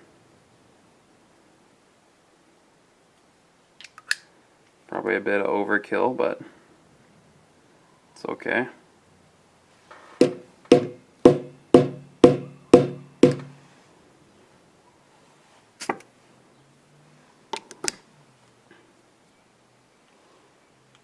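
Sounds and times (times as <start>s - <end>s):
metal hair stacker tapping on bench: 10.2s - 13.6s.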